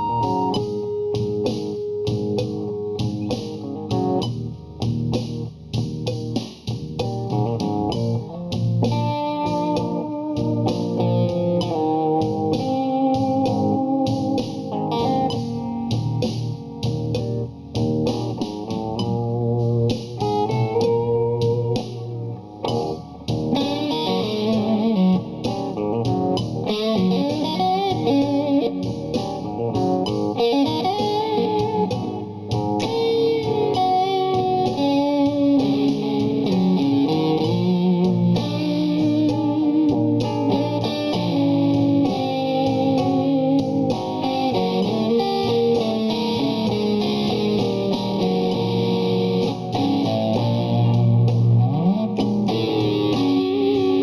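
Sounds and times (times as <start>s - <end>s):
electric guitar solo: 0.0s - 5.6s, 6.2s - 54.0s
drum beat: 0.0s - 54.0s
rhythm guitar: 0.0s - 54.0s.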